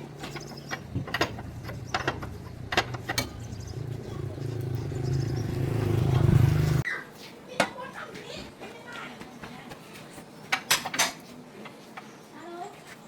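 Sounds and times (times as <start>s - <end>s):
tractor engine running: 0.0s - 6.8s
sharp metallic knocks: 0.2s - 6.0s.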